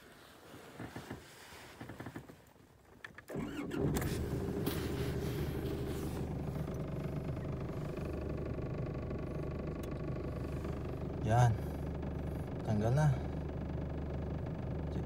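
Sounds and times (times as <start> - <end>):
faint clicks and rustles: 0.0 - 8.3
engine cranking and idling: 0.5 - 15.0.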